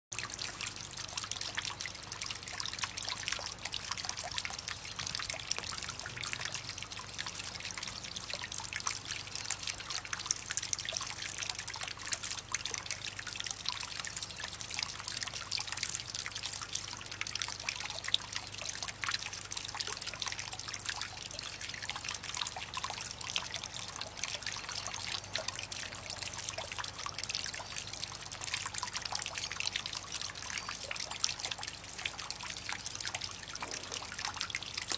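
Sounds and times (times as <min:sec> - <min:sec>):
water trickling and dripping: 0:00.1 - 0:34.9.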